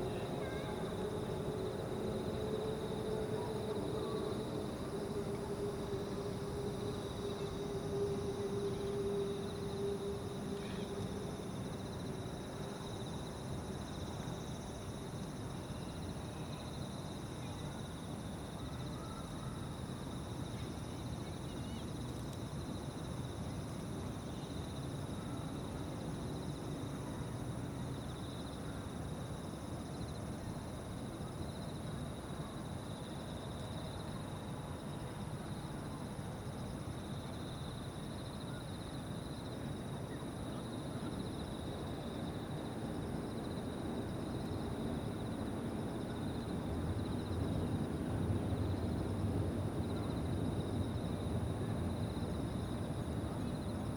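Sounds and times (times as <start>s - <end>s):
insects chirring: 0.0s - 53.9s.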